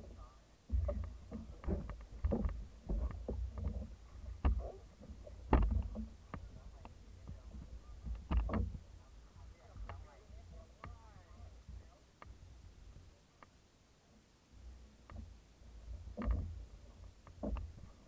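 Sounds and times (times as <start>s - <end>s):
paddles splashing and knocking: 0.0s - 12.4s, 14.8s - 18.0s.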